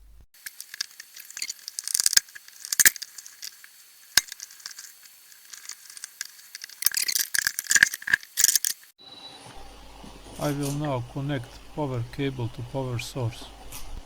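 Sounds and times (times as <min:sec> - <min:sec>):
plastic parts scraping and rattling: 0:00.4 - 0:08.9.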